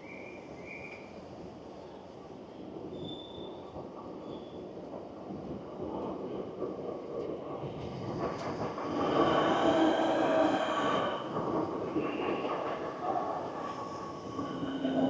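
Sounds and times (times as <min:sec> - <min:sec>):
train rumbling: 0:00.1 - 0:15.0
high-pitched brake squeal: 0:02.9 - 0:03.6.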